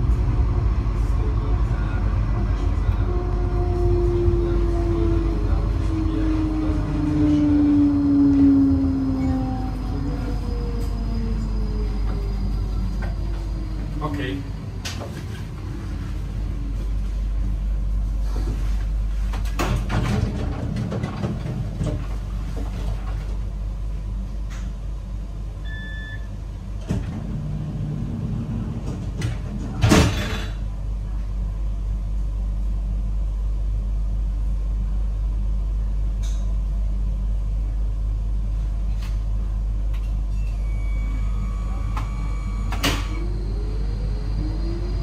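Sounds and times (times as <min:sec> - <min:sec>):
train rumbling: 0:00.0 - 0:45.0
faint short beep: 0:25.6 - 0:26.4.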